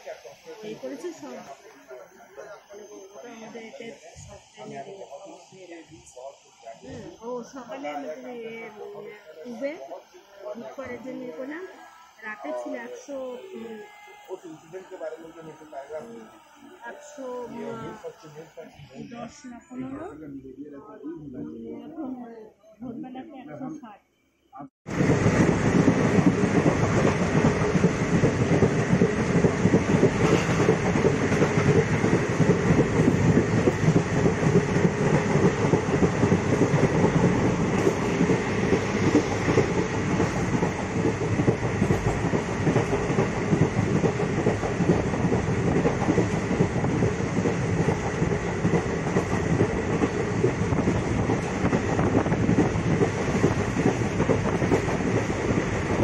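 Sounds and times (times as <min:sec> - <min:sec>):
train wheels running on rails: 0:24.9 - 0:56.0.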